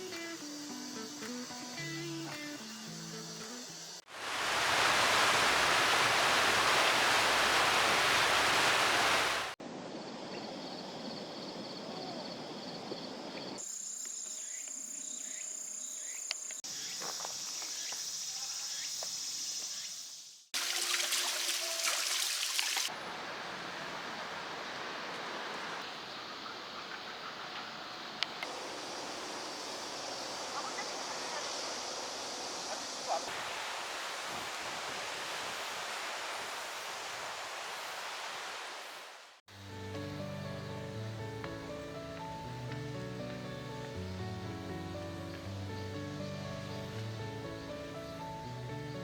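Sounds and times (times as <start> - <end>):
natural background sounds: 0.0 - 49.0
loud rushing water: 4.1 - 9.6, 20.6 - 25.9, 28.4 - 39.4.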